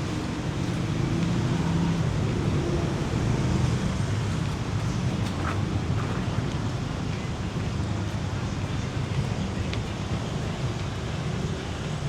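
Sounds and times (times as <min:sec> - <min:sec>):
traffic engines rumbling: 0:00.0 - 0:12.0.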